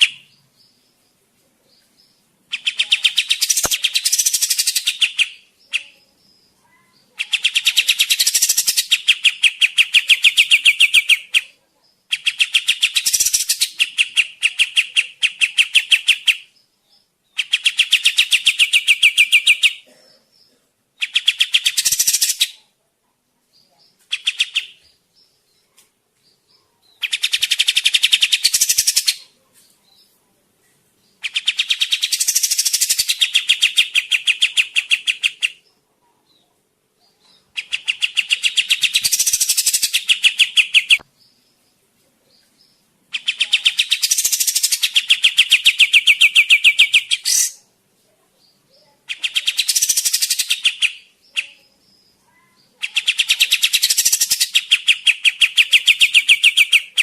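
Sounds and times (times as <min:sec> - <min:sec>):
bird fast chattering call: 0:02.5 - 0:05.4, 0:07.2 - 0:11.4, 0:12.1 - 0:16.4, 0:21.0 - 0:22.6, 0:27.0 - 0:29.2, 0:31.2 - 0:35.5, 0:37.6 - 0:41.0, 0:43.2 - 0:47.6, 0:52.8 - 0:57.0.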